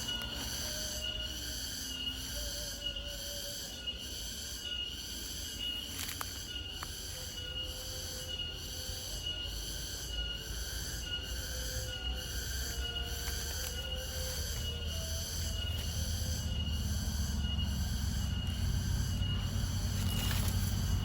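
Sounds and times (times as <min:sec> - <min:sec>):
crickets chirping: 0:00.0 - 0:21.0
low rumble: 0:13.8 - 0:21.0.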